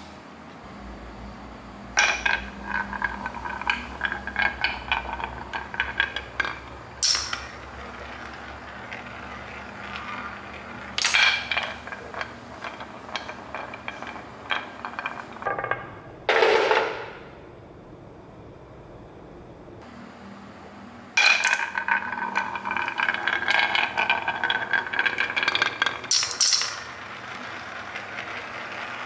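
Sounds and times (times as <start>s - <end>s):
small hard objects clicking and rattling: 2.0s - 15.5s, 21.2s - 29.0s.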